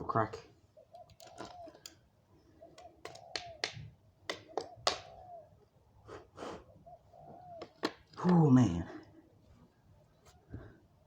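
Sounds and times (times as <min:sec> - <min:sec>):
dove cooing: 0:00.8 - 0:05.6, 0:06.6 - 0:08.0.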